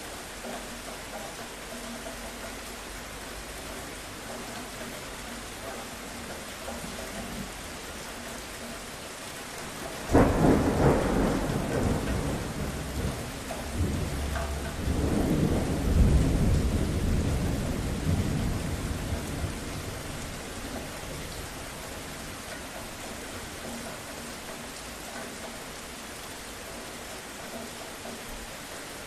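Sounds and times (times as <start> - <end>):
steady rain: 0.0 - 29.0
thunderclap and rumble: 9.7 - 22.6.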